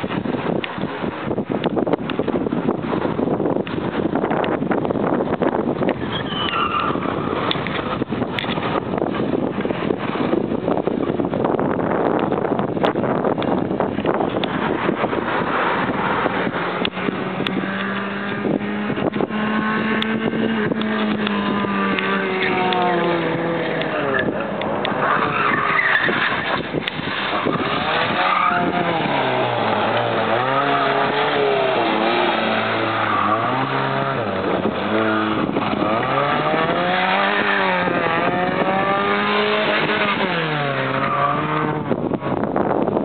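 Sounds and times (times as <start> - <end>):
tyre squeal: 6.0 - 7.4, 20.9 - 38.2
race car engine revving: 13.5 - 42.5.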